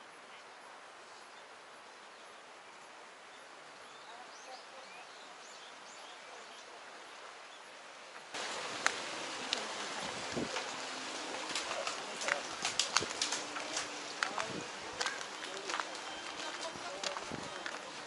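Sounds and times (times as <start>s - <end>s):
steady outdoor hiss: 0.0s - 18.0s
small birds chirping: 0.3s - 8.0s.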